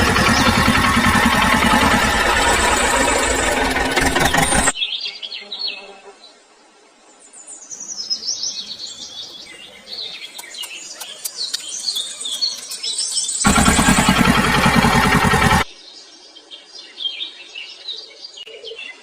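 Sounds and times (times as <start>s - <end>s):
loud steady noise: 0.0s - 4.8s, 13.4s - 15.7s
small birds chirping: 0.0s - 5.9s, 7.4s - 19.0s.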